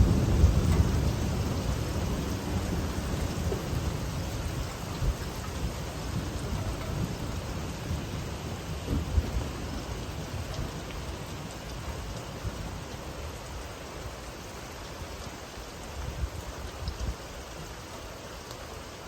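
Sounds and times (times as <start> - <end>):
low thunder rumble: 0.0 - 13.0
steady rain falling: 0.0 - 19.0.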